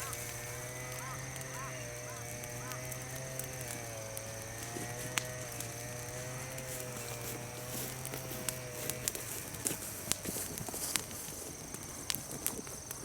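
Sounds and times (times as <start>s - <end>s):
steady wavering hum: 0.0s - 10.1s
bonfire crackling: 0.0s - 13.0s
sharp pops from fire: 0.0s - 13.0s.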